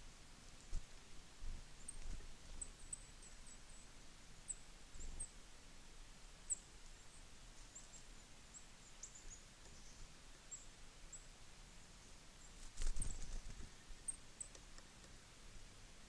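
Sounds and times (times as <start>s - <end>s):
faint background noise: 0.0s - 16.0s
small birds chirping: 1.7s - 5.4s, 6.4s - 15.3s.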